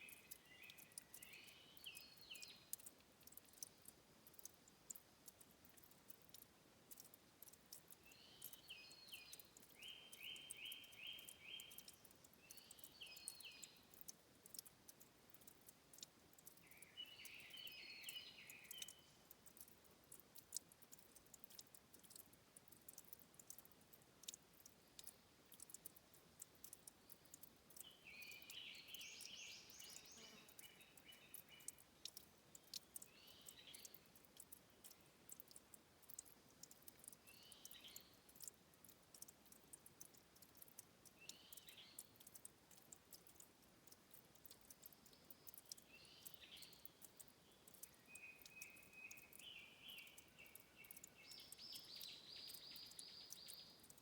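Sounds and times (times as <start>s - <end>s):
songbird singing: 0.0s - 54.0s
water dripping and trickling: 0.0s - 54.0s.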